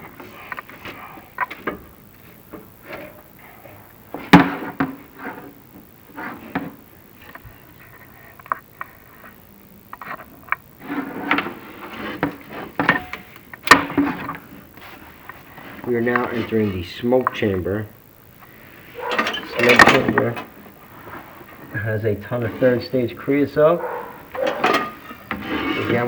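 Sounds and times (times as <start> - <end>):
push rod scraping chimney flue: 23.8 - 26.0.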